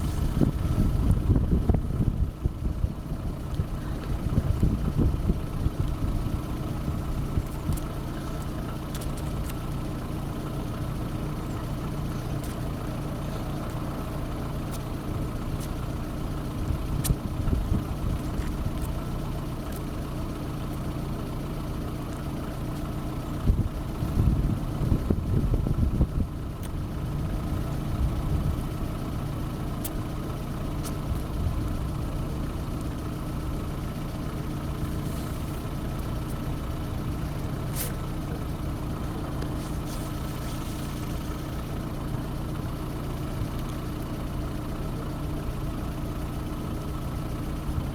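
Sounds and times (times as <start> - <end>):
engine idling: 0.0 - 47.9.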